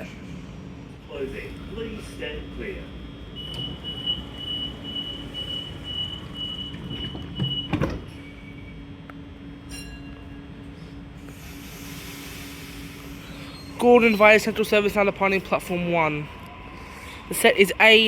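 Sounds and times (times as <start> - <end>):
train hum: 0.0 - 18.0
rapid warning beep: 3.3 - 8.8
train doors thudding shut: 5.7 - 8.2.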